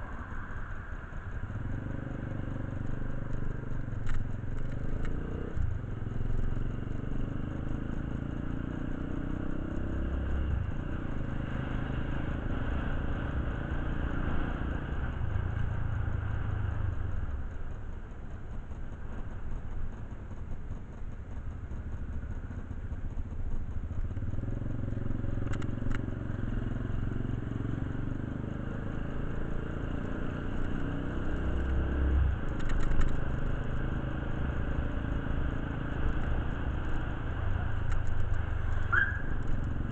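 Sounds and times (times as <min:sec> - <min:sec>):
short clicks and clatter: 0:32.5 - 0:33.2.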